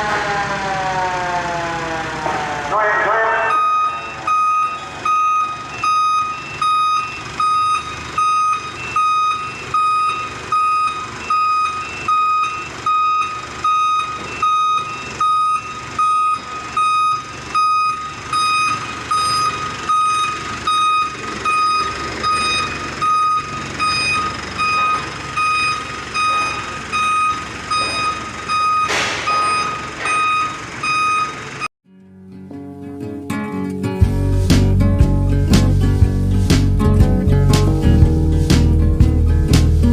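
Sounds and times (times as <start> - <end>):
reversing alarm beeping: 0.0 - 31.7
truck engine running: 0.0 - 31.7, 34.0 - 39.9.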